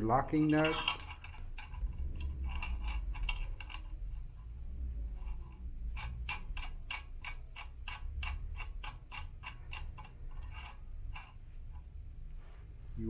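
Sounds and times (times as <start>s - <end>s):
ratchet wrench clicking: 0.5s - 4.2s, 5.2s - 11.9s.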